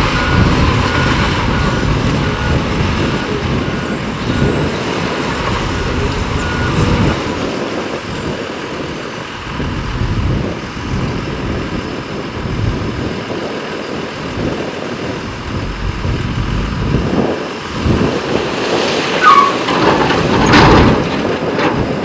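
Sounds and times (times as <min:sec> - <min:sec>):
high squeal: 0:00.0 - 0:08.5, 0:19.0 - 0:21.1
machinery clatter: 0:00.0 - 0:10.3, 0:15.5 - 0:22.0
diesel machinery rumble: 0:00.0 - 0:22.0.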